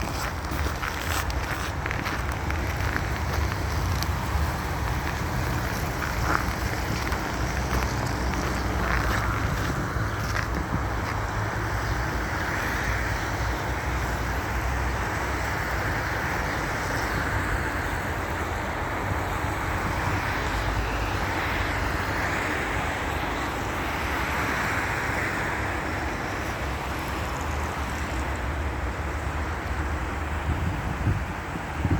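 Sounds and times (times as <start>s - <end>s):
steady rushing noise: 0.0s - 12.2s
wind buffeting microphone: 0.0s - 12.5s, 30.2s - 31.9s.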